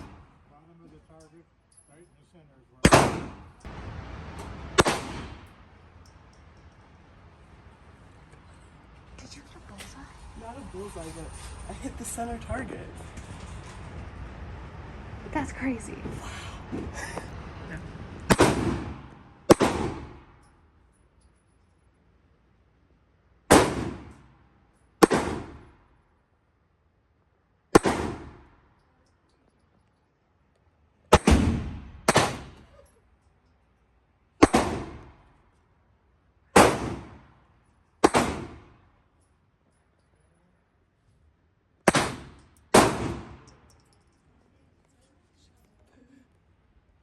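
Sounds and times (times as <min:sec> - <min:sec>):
gunshots with echo: 0:02.8 - 0:03.6, 0:04.7 - 0:05.5, 0:18.3 - 0:20.4, 0:23.5 - 0:24.2, 0:25.0 - 0:25.7, 0:27.7 - 0:28.5, 0:31.1 - 0:32.6, 0:34.4 - 0:35.2, 0:36.6 - 0:37.2, 0:38.0 - 0:38.7, 0:41.9 - 0:43.5.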